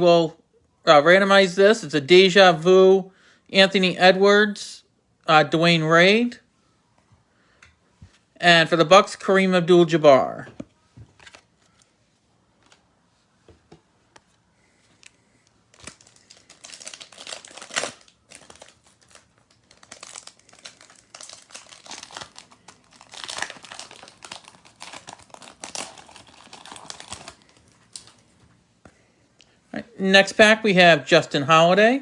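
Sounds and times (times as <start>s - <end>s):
wrapper tearing and crinkling: 15.7s - 28.2s.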